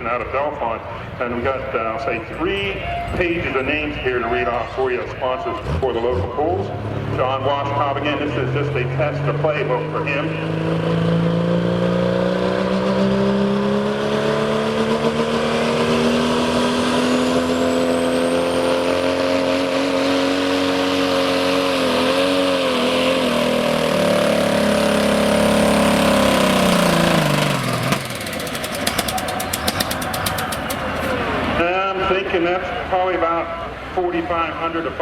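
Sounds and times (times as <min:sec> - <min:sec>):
announcer speaking: 0:00.0 - 0:10.8, 0:31.0 - 0:35.0
pickup truck engine at full throttle: 0:02.8 - 0:35.0.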